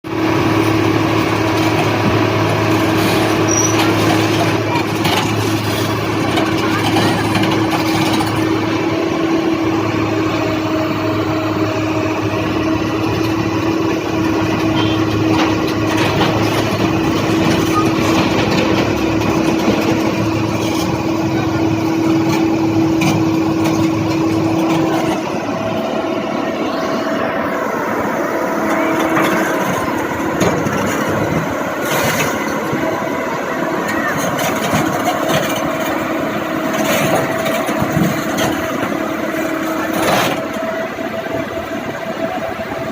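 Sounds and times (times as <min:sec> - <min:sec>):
construction machinery engine whine: 0:00.0 - 0:42.9.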